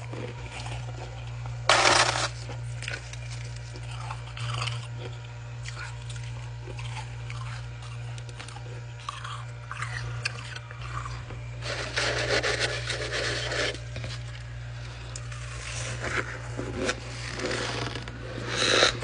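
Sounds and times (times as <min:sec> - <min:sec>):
ice being chewed and crunched: 0:00.0 - 0:19.0.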